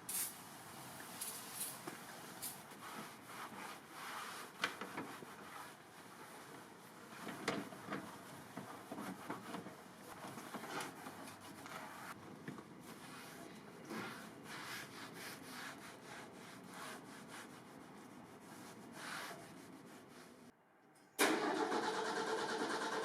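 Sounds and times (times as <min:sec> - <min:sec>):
hand scrubbing a surface: 0:01.2 - 0:07.4, 0:08.0 - 0:12.2, 0:12.8 - 0:20.5.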